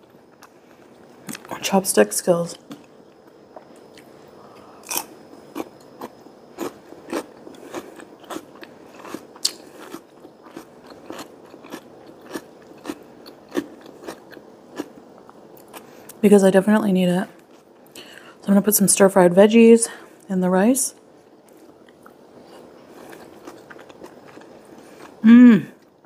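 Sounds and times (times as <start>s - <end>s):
crunchy cucumber chewing: 2.6s - 16.0s, 21.4s - 25.2s.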